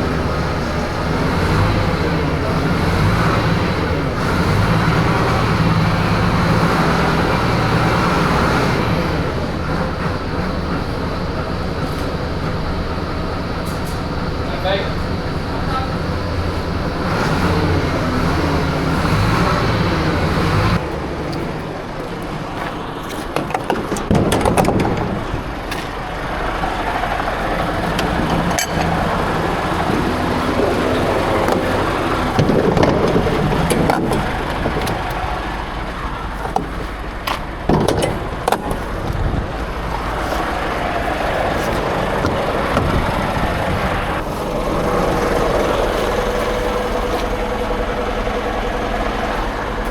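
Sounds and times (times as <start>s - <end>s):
heavy truck engine running: 0.0s - 49.9s
clicks and knocks: 23.1s - 26.8s, 27.4s - 35.6s, 36.2s - 44.0s.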